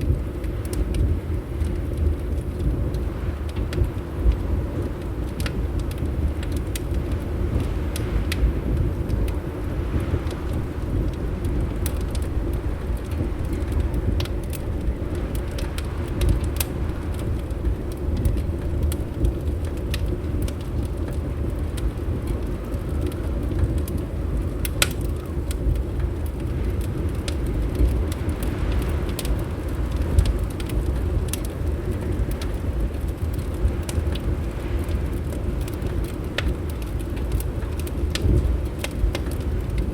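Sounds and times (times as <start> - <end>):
wind rumbling outside: 0.0 - 39.9
wood fire crackling and popping: 0.0 - 39.9.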